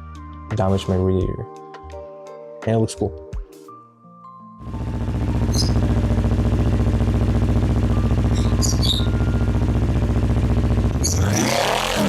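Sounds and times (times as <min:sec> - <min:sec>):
motorcycle engine idling: 0:04.6 - 0:11.9.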